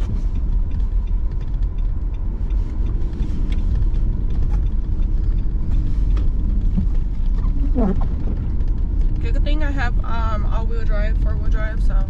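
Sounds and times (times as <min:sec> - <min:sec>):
car engine running: 0:00.0 - 0:12.0
tyre and road noise: 0:00.0 - 0:12.0.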